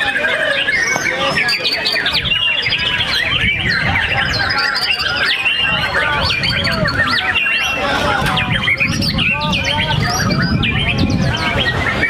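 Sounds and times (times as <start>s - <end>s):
birds whistling and chirping: 0.0s - 12.0s
wind rumble on microphone: 1.2s - 12.0s.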